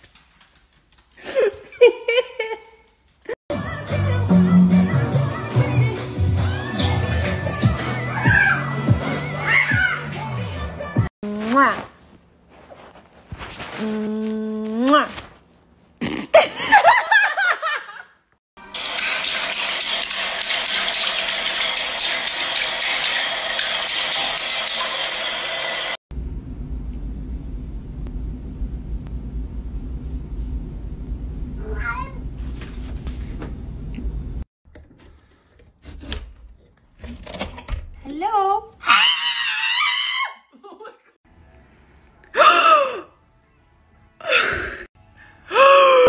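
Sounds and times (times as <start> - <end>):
low rumbling noise: 26.1 - 32.4.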